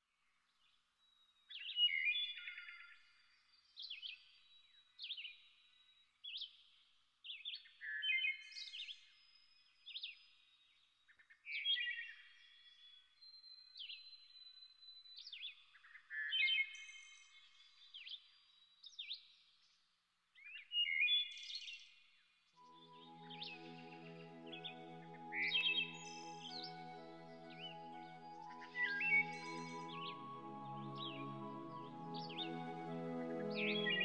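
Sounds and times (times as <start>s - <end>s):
songbirds chirping and trilling: 22.6s - 34.0s.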